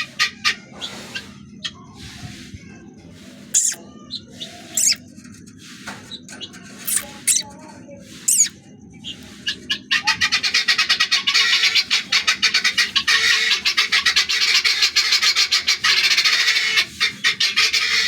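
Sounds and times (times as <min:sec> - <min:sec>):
fast repeated bird calls: 0:03.6 - 0:03.8, 0:04.7 - 0:05.0, 0:06.8 - 0:07.4, 0:08.3 - 0:08.5
birds chirping and squawking: 0:03.6 - 0:05.1, 0:06.1 - 0:07.5, 0:08.2 - 0:18.0.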